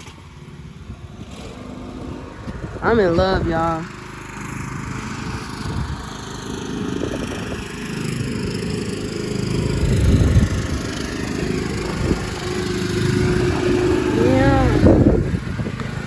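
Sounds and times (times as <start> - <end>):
car engine idling: 0.5 - 16.0.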